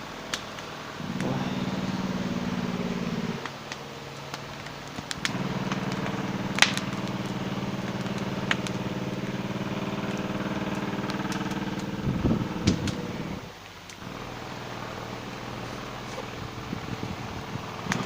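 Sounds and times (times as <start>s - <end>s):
motor humming: 1.0s - 3.5s, 5.1s - 18.0s.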